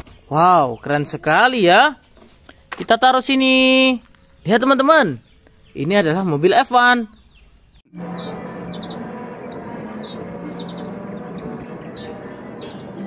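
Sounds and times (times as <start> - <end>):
small bird chirping: 7.0 - 13.0
steady background rush: 8.0 - 13.0.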